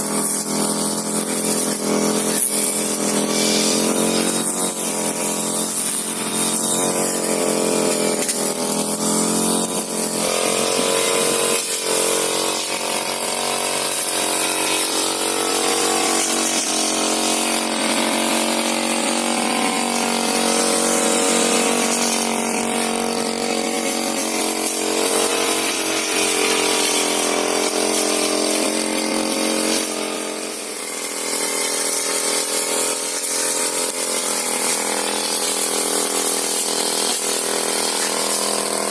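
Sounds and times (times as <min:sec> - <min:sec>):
brush cutter engine cutting weeds: 0:00.0 - 0:38.9.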